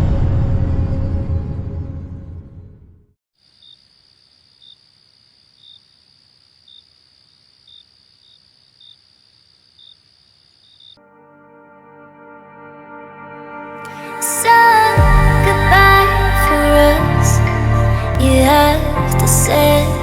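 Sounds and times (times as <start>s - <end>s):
deep boom with music: 0.0s - 3.0s, 14.9s - 20.0s
crickets chirping: 3.4s - 11.0s.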